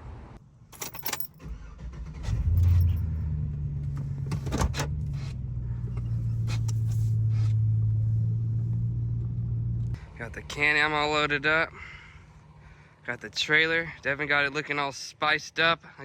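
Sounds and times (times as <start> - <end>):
vehicle engine starting and idling: 0.9 - 12.9.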